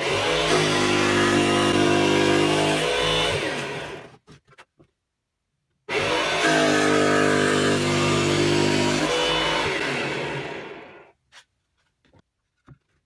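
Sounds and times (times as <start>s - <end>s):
power tool motor winding down: 0.0s - 4.1s, 5.9s - 11.1s.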